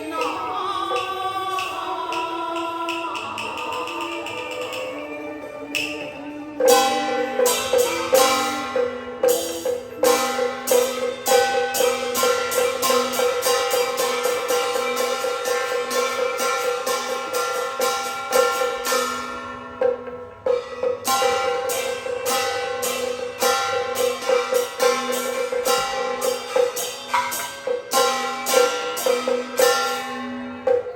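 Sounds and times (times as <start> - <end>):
sharp percussion strikes: 0.0 - 30.9.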